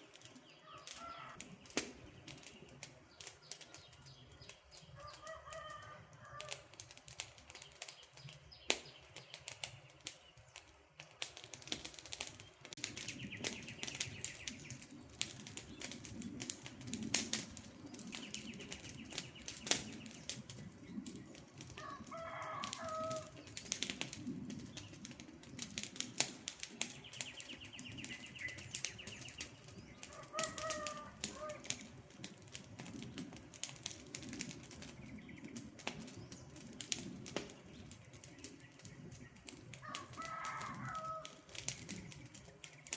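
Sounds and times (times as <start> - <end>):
campfire crackling and popping: 0.0 - 42.9
bird calling: 0.5 - 1.4, 27.0 - 31.9.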